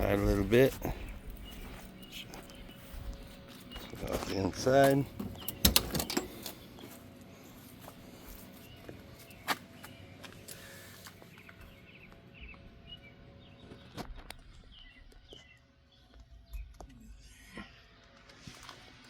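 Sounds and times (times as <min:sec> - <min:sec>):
birds chirping: 0:00.0 - 0:18.2
sharp clicks or knocks: 0:05.2 - 0:06.6.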